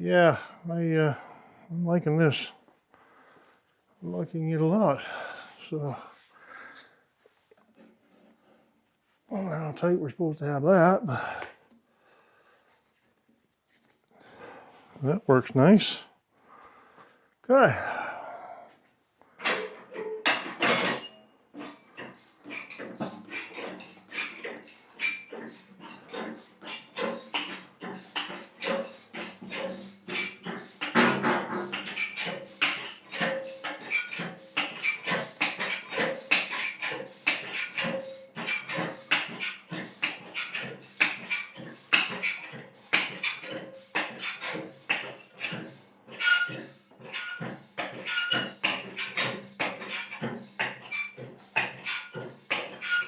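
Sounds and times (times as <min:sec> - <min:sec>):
hydraulic lift squeaking: 0:19.4 - 0:53.0.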